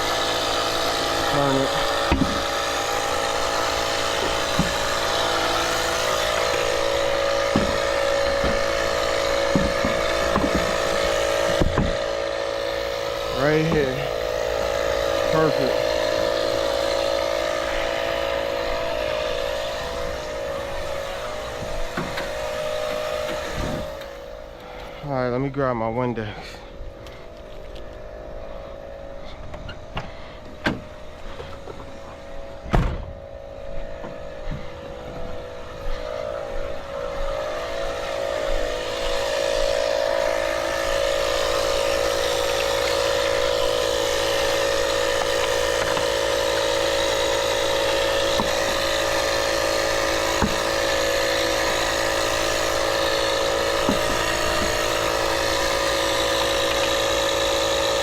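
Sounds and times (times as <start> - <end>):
vehicle engine idling: 0.0 - 58.0
sharp thump: 2.1 - 2.4, 32.6 - 33.1.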